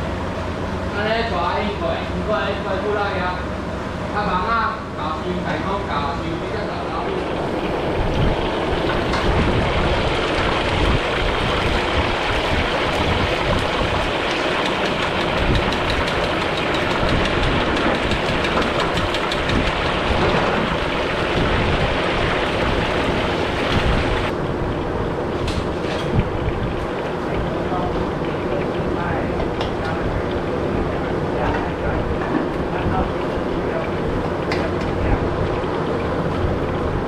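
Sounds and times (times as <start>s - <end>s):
fish sizzling in hot oil: 7.7s - 24.3s.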